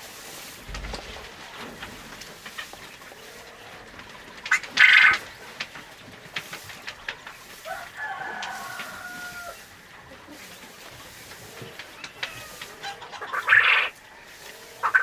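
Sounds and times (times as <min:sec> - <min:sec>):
burst of fowl noise: 0:04.5 - 0:05.3, 0:07.5 - 0:10.5, 0:11.4 - 0:15.0
rooster crowing: 0:07.6 - 0:09.8, 0:12.2 - 0:13.9.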